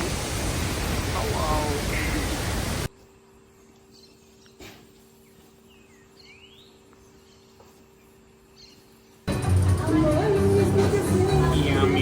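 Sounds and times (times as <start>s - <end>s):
faint bird chirps: 3.4s - 9.2s.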